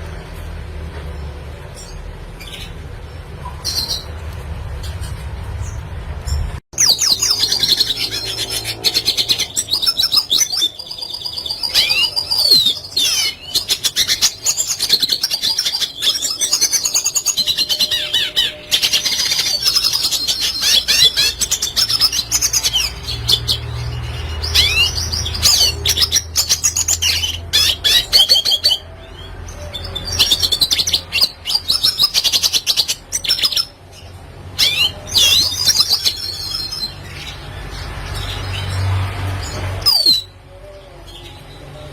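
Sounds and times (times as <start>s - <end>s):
bird twittering song: 4.8s - 41.9s.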